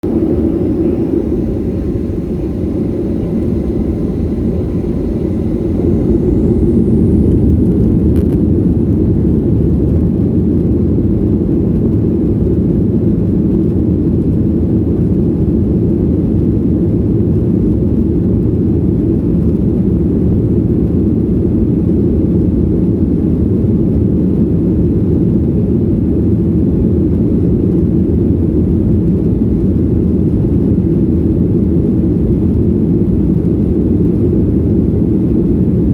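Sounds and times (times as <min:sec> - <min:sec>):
faint high whine: 0:00.0 - 0:09.1
airliner engine rumble: 0:00.0 - 0:35.9.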